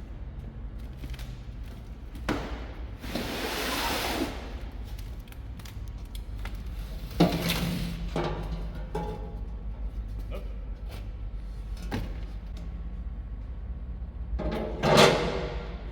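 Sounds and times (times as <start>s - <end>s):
metal clanks and knocks: 8.1s - 9.7s.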